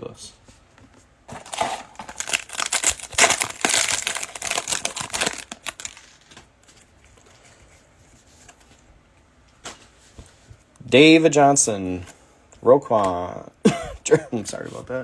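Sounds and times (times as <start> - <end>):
foil wrapper crinkling: 1.3 - 6.4.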